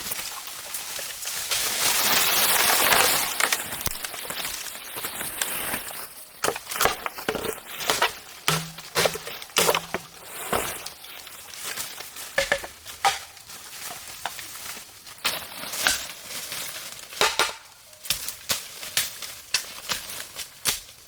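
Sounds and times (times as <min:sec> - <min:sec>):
sharp knocks and cracks: 0:06.4 - 0:10.9, 0:12.4 - 0:13.4, 0:15.8 - 0:16.2, 0:17.1 - 0:21.0.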